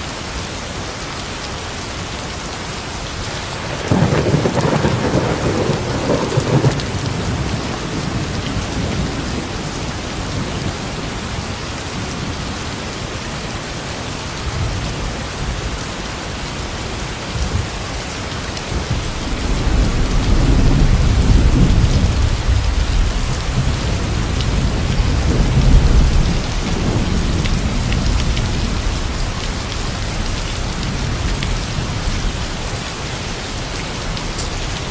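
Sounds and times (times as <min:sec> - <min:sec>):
steady rain falling: 0:00.0 - 0:34.9
thunder rumbling: 0:03.6 - 0:11.5, 0:18.8 - 0:32.6.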